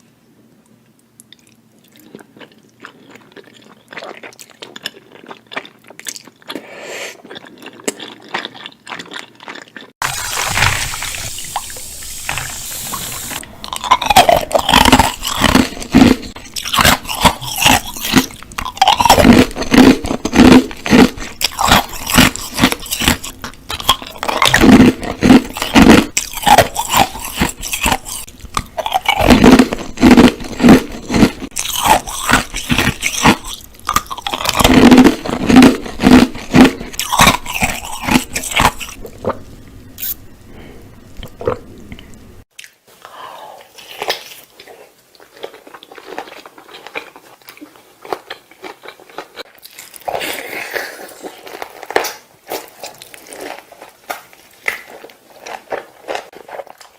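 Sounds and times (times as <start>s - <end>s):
person biting and chewing: 1.3s - 42.8s.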